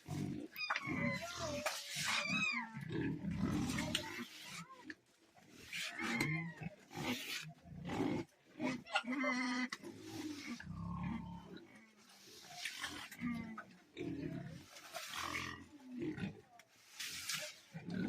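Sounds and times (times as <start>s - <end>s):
pigs grunting: 0.0s - 4.7s, 5.5s - 16.6s, 17.2s - 18.0s
pig squeals: 0.1s - 4.6s, 5.7s - 7.5s.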